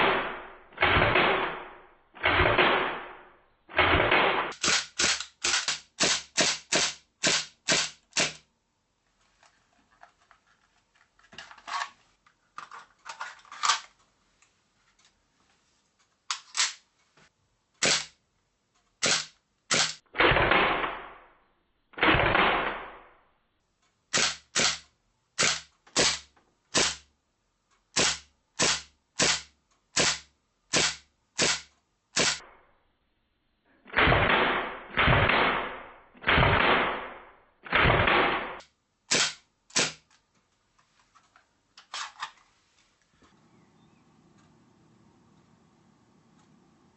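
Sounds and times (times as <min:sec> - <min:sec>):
airsoft pistol shots: 0:00.0 - 0:08.4, 0:17.8 - 0:18.1, 0:19.0 - 0:21.2, 0:24.1 - 0:24.8, 0:25.4 - 0:27.0, 0:28.0 - 0:32.5, 0:33.9 - 0:40.0.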